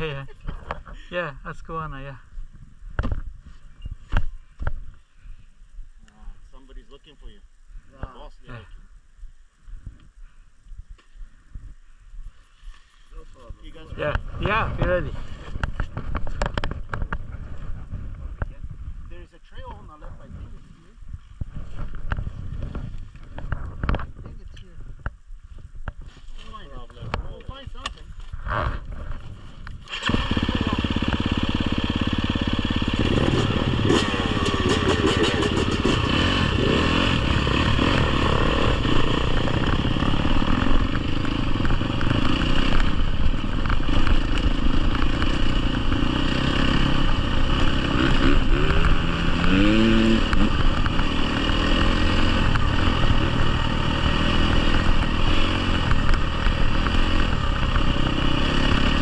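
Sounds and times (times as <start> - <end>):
dirt bike engine revving: 29.8 - 59.0.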